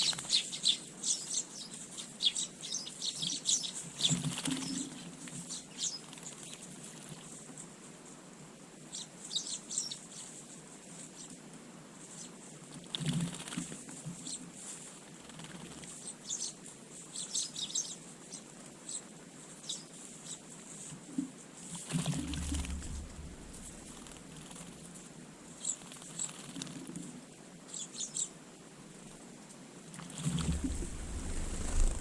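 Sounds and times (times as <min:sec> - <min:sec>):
small birds chirping: 0:00.0 - 0:07.5, 0:08.8 - 0:11.4, 0:12.0 - 0:14.6, 0:15.2 - 0:24.8, 0:25.5 - 0:27.0, 0:27.6 - 0:28.4
low rumble: 0:22.4 - 0:24.0, 0:30.4 - 0:32.0.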